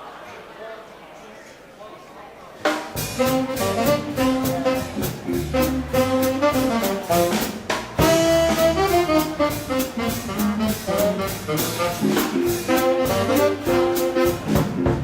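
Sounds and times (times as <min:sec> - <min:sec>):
steady drum beat: 0:02.7 - 0:15.0
saxophone and horn lines: 0:03.0 - 0:15.0.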